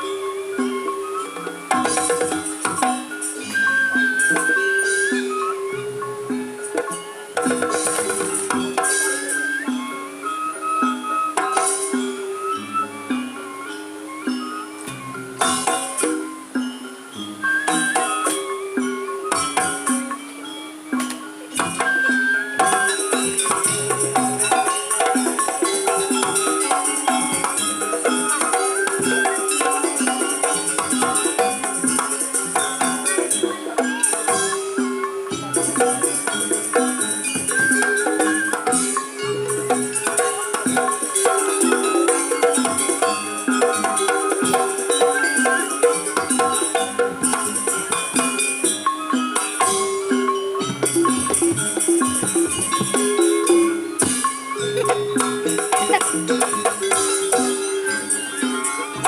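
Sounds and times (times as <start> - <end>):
high jingling: 0.0 - 9.6, 13.7 - 59.0
gamelan ensemble drums and metal: 0.0 - 59.0
tuned metal percussion: 0.0 - 59.0.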